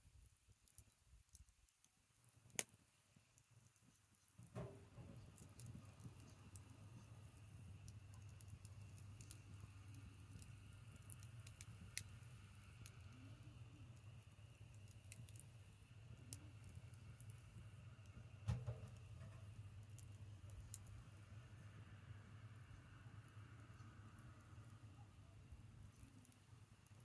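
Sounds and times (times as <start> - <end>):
campfire crackling: 0.3 - 27.0
sharp pop of fire: 18.4 - 19.4.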